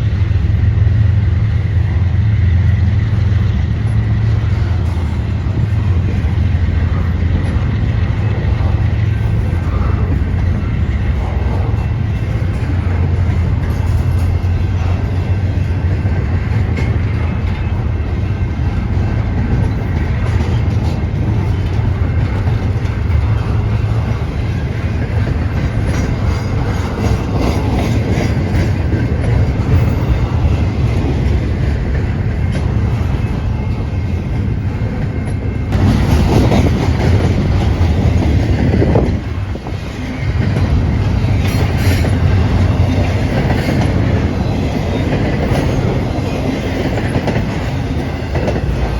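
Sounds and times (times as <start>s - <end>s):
train rumbling past: 0.0s - 48.9s
wheels clicking over rail joints: 2.6s - 48.9s.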